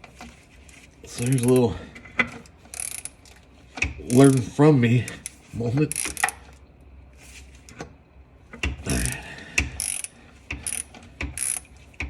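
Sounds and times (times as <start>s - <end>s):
socket ratchet clicking: 2.7s - 4.4s, 5.2s - 6.4s, 8.6s - 11.7s.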